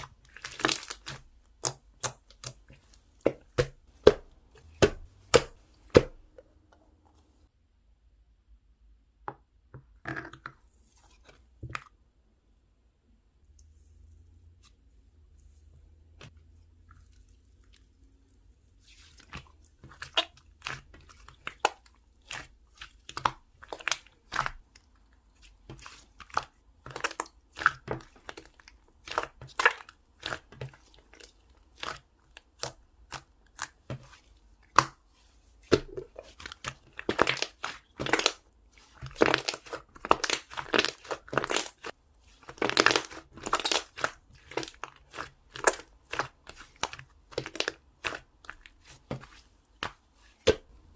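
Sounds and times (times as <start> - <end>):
slime popping and crackling: 0.1 - 2.6, 35.7 - 48.9.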